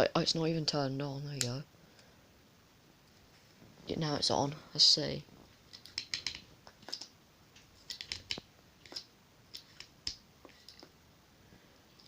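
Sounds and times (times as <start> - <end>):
plastic toy clicks and taps: 5.8 - 7.0, 7.9 - 9.1.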